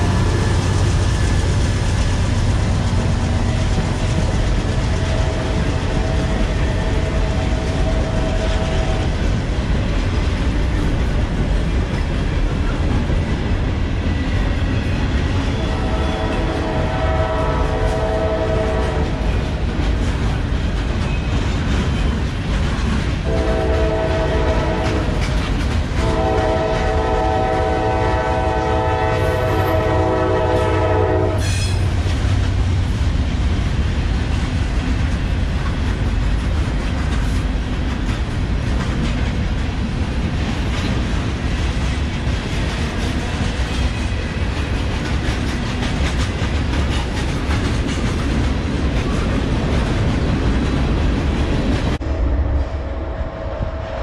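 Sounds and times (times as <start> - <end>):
freight train rolling past: 0.0 - 54.0
locomotive air horn: 4.9 - 9.2, 15.6 - 19.2, 23.2 - 25.2, 26.0 - 31.8
wheels clacking over rail joints: 18.8 - 29.8, 30.4 - 52.0.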